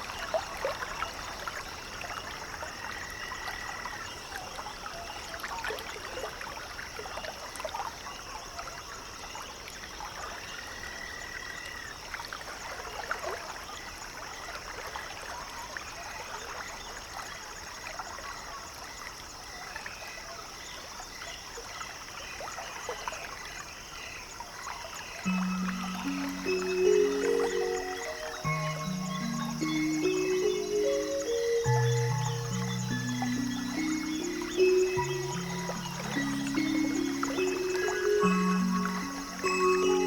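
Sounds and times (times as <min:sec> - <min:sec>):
frogs trilling: 0:25.0 - 0:40.0
high-pitched chorus: 0:25.3 - 0:40.0.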